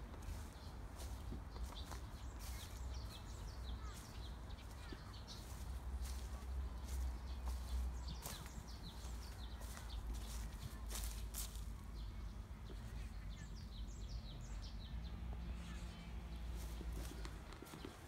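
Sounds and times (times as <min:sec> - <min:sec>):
soft footsteps: 0:00.0 - 0:11.8, 0:16.5 - 0:18.0
small birds chirping: 0:00.0 - 0:18.0.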